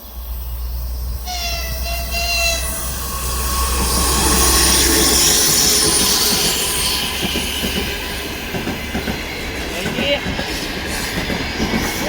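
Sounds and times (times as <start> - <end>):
high hiss: 0.0 - 8.4
train wheels rumbling on rails: 0.0 - 12.0.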